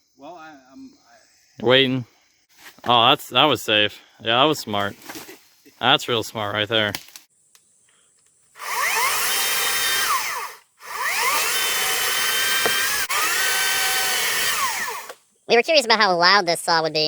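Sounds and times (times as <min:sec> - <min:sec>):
electric chainsaw whine: 0:08.6 - 0:15.2.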